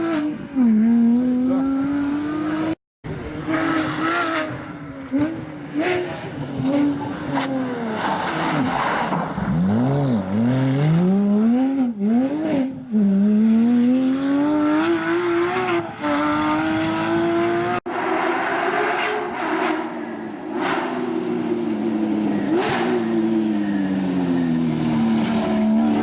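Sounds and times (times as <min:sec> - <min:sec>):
race car engine at high revs: 0:00.0 - 0:26.0.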